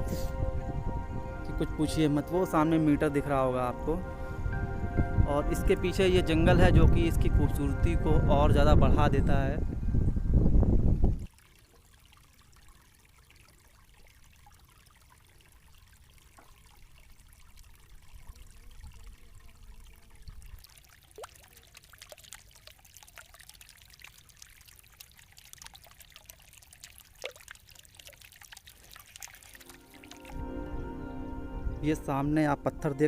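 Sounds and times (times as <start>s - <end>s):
water trickling and pouring: 11.0s - 30.7s
water splashes and drips: 11.1s - 30.4s.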